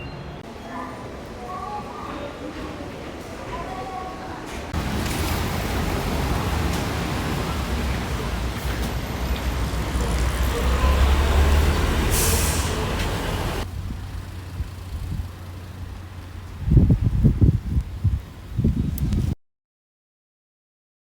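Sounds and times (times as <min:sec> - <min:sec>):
electric train rumbling: 0:02.4 - 0:19.4
air hiss: 0:12.0 - 0:13.2.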